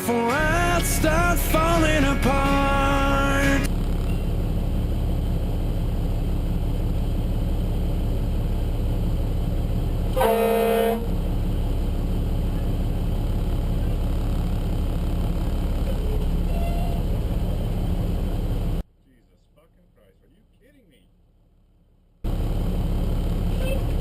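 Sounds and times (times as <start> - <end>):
fire engine rumble from cab: 0.4 - 24.0
short horn blast: 10.1 - 11.2.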